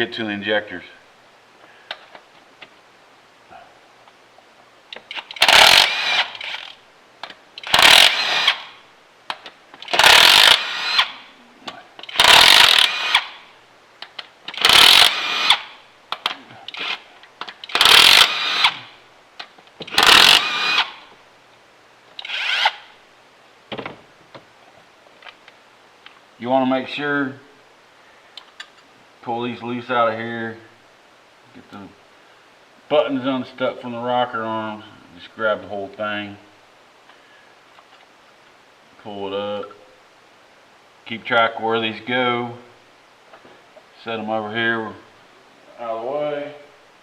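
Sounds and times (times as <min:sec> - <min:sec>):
power tool bursts: 0:05.1 - 0:06.8, 0:07.6 - 0:08.8, 0:09.8 - 0:11.2, 0:12.0 - 0:13.4, 0:14.5 - 0:15.8, 0:16.7 - 0:17.0, 0:17.6 - 0:19.0, 0:19.9 - 0:21.0, 0:22.2 - 0:22.9.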